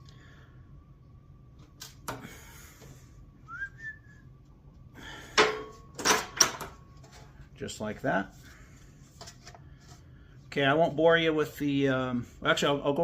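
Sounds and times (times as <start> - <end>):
short rising whistle: 3.5 - 4.3.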